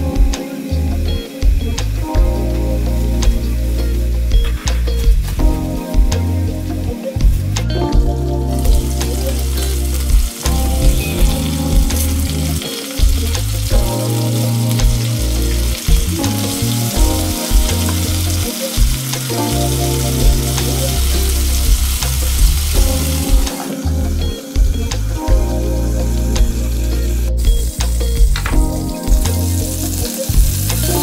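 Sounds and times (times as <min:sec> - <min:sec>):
background music with bass line: 0:00.0 - 0:31.0
chicken sizzling in a pan: 0:08.6 - 0:23.9, 0:25.8 - 0:31.0.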